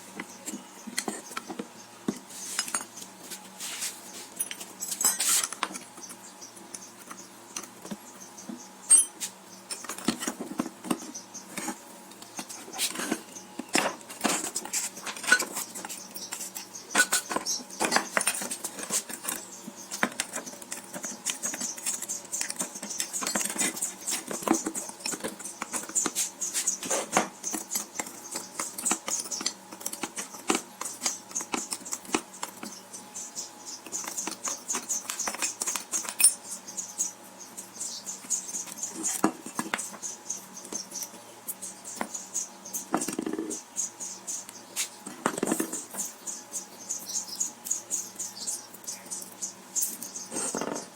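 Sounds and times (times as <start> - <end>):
clicks taps and scrapes on metal: 4.3 - 32.8, 38.7 - 40.0.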